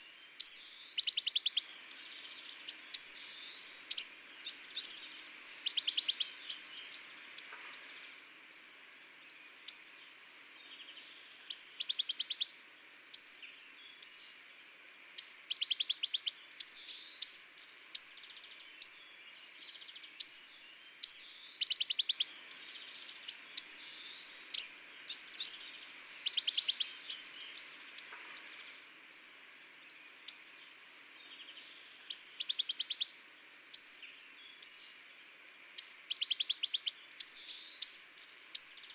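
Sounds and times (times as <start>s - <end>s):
songbirds chirping: 0.0s - 38.9s
fast rattling bird trill: 0.4s - 8.0s, 20.2s - 29.3s.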